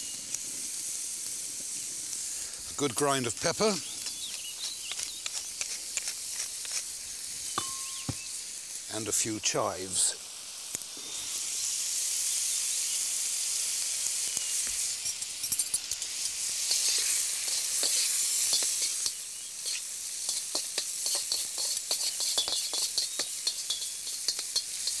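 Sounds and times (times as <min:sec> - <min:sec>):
food sizzling in hot oil: 0:00.0 - 0:25.0
utensils scraping metal wok: 0:03.4 - 0:08.1, 0:14.8 - 0:25.0.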